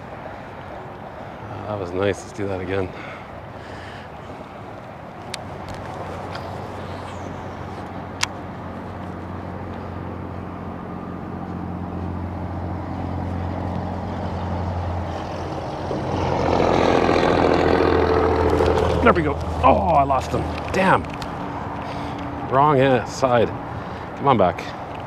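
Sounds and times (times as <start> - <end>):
engine humming: 0.0 - 25.0
busier engine note: 5.7 - 24.9.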